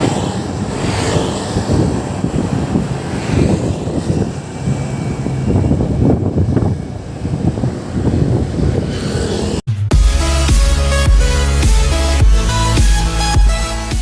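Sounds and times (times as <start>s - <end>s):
wind on microphone: 0.0s - 9.6s
road noise rumbling: 0.0s - 14.0s.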